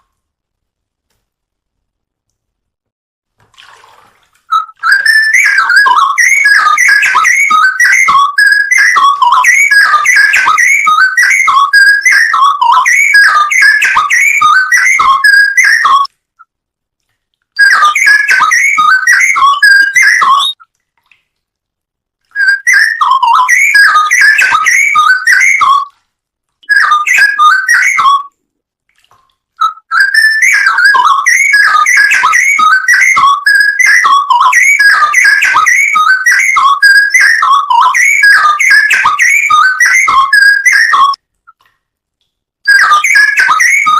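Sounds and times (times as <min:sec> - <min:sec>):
bulbul bubbling whistled song: 0:04.5 - 0:16.5, 0:17.6 - 0:20.7, 0:22.3 - 0:25.9, 0:26.6 - 0:28.4, 0:29.6 - 0:41.6, 0:42.7 - 0:43.9.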